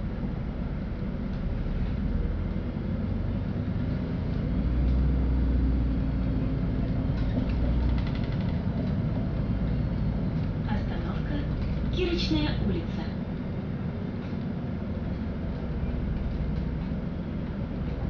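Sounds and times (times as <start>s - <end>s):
bus engine rumble: 0.0s - 18.0s
road noise: 0.0s - 18.0s
rapid ticking or rattling: 7.3s - 9.2s.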